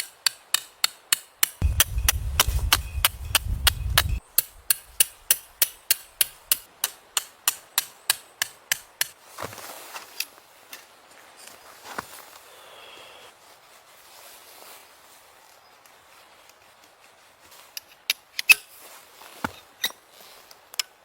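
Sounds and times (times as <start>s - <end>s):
low rumble: 1.6s - 4.7s.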